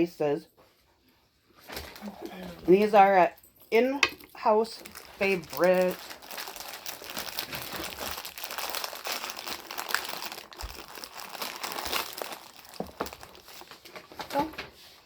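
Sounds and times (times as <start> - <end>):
plastic wrapper crinkling: 4.7 - 14.5.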